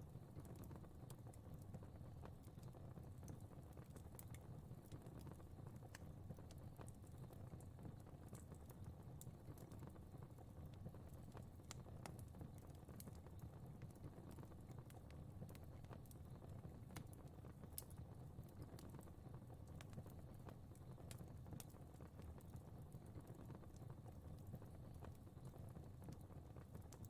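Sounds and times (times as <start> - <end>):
fire crackling: 0.0 - 27.0.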